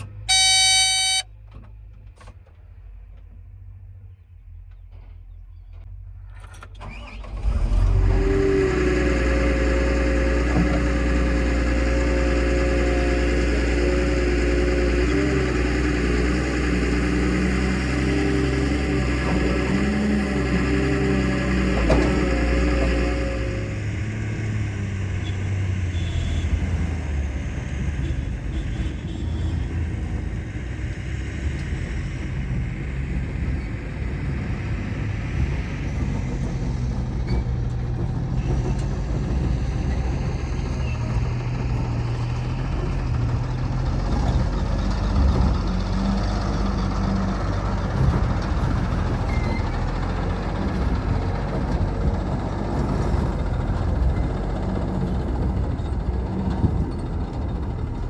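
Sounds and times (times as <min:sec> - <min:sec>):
heavy diesel engines running: 0:00.0 - 0:58.0.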